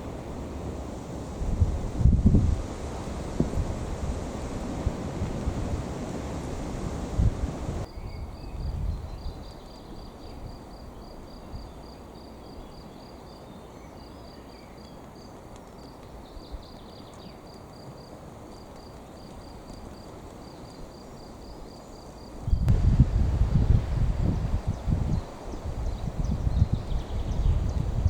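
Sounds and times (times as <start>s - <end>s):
insect chirping: 7.6s - 23.0s
steady low rumble: 22.6s - 25.2s.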